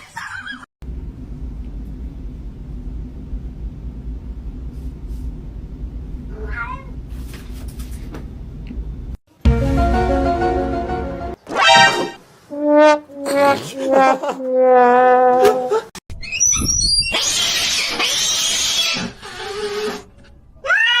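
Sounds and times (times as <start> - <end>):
steady low rumble: 0.8 - 6.3
cat meowing: 6.3 - 6.9.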